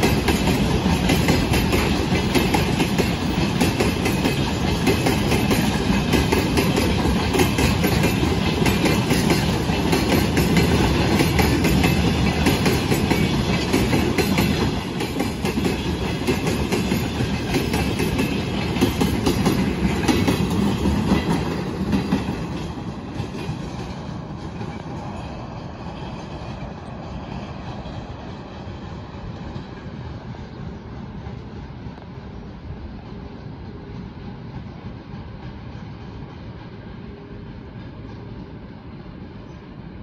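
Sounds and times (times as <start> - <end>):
freight train rolling past: 0.0 - 40.0.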